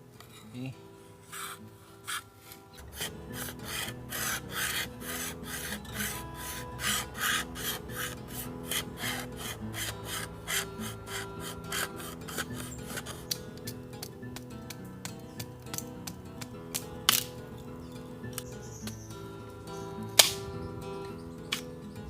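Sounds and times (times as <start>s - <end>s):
knife scraping bamboo: 1.3s - 14.1s.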